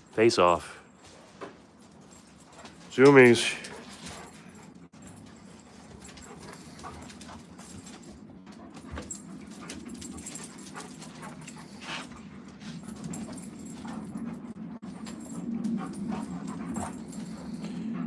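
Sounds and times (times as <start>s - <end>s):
dogs scuffling: 0.9s - 18.0s
low dog rumble: 2.6s - 18.0s.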